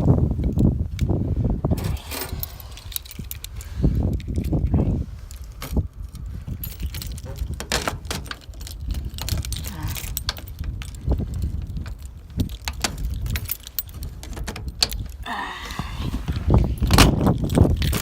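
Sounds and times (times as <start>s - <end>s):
keys jangling and clicking: 2.0s - 15.2s.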